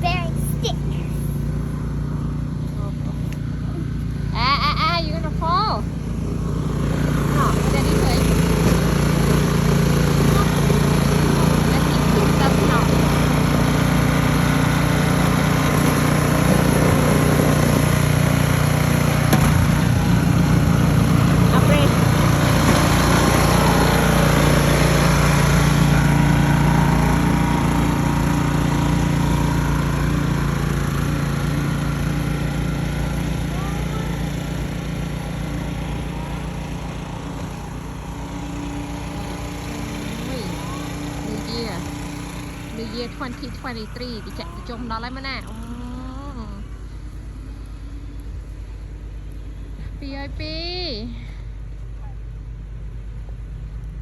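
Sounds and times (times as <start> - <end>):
engine humming: 0.0 - 54.0.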